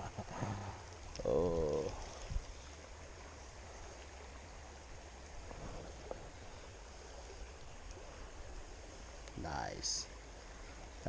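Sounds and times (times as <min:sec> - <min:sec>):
faint clicks: 0:09.2 - 0:09.4.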